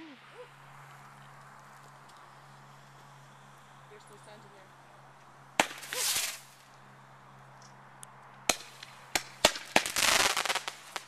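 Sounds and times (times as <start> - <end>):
fireworks bangs and crackling: 5.6 - 6.6, 8.5 - 11.0.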